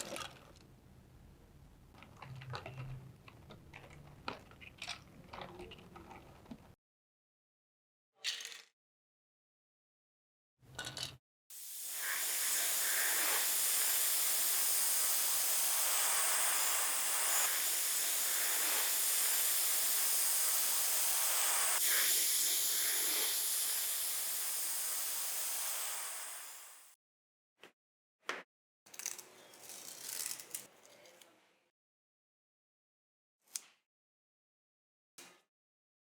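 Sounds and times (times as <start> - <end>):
spray nozzle hissing: 11.5 - 26.9.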